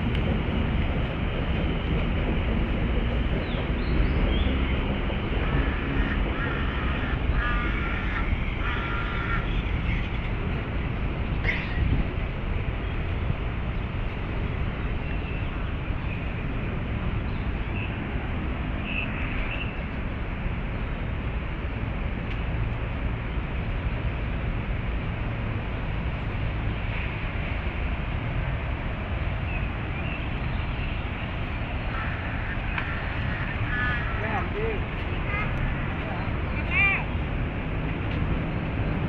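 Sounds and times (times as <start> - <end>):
distant city traffic rumble: 0.0 - 39.0
faint bird calls: 31.8 - 35.5.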